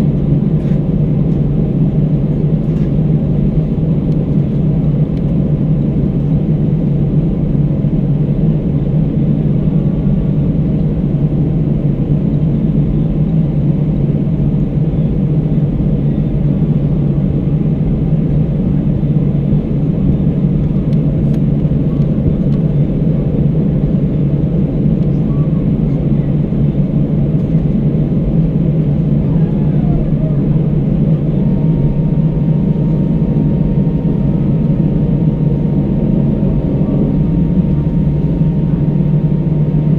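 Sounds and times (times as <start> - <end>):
airliner cabin engine drone: 0.0 - 39.9.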